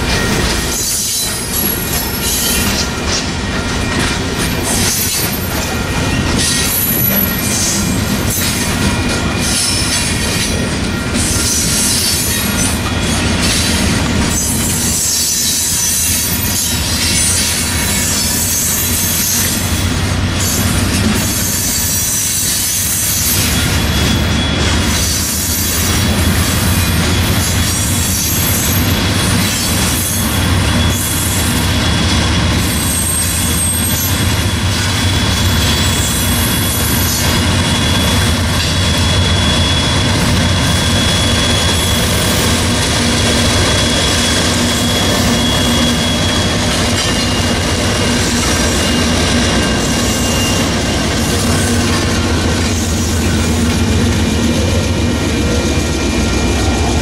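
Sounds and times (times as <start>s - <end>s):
diesel locomotive engine hum: 0.0s - 57.0s
train wheel rumble: 0.0s - 57.0s
thin wheel squeal: 4.9s - 8.4s, 21.1s - 53.8s.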